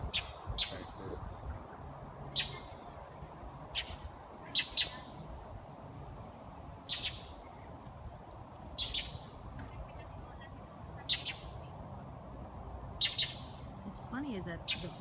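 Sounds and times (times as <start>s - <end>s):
birds giving harsh alarm calls: 0.0s - 1.0s, 2.2s - 2.8s, 3.7s - 5.2s, 6.8s - 7.4s, 8.8s - 9.4s, 11.0s - 11.6s, 13.0s - 13.8s, 14.6s - 15.0s.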